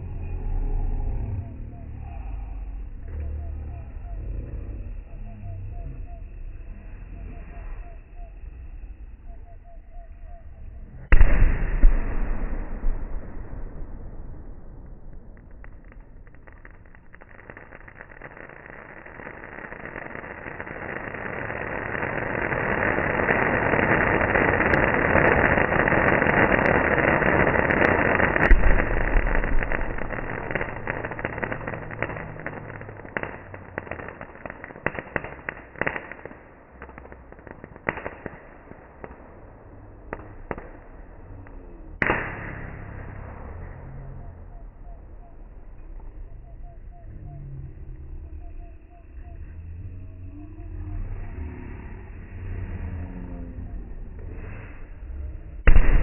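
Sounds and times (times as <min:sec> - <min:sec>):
firecrackers crackling and banging: 0:10.9 - 0:56.0.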